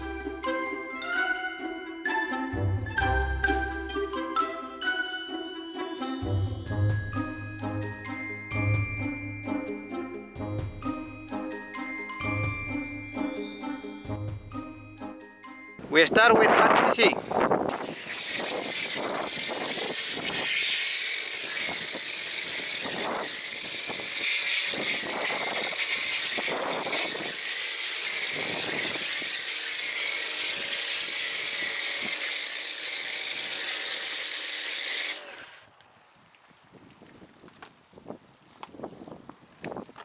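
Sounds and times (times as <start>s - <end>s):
foam cannon hissing spray: 17.7s - 35.6s.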